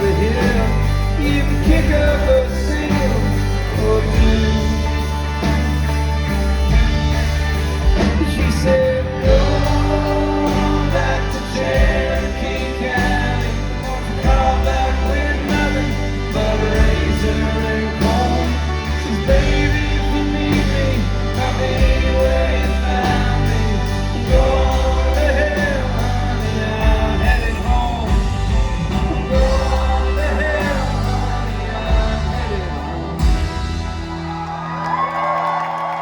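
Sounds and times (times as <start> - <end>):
lead vocal singing: 0.0 - 35.0
live country band: 0.0 - 36.0
drum beat: 26.7 - 34.3.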